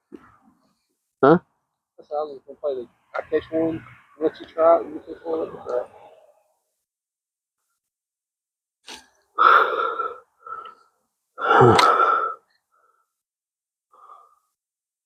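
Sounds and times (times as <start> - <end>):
person gasping: 9.4 - 10.8, 11.4 - 12.4.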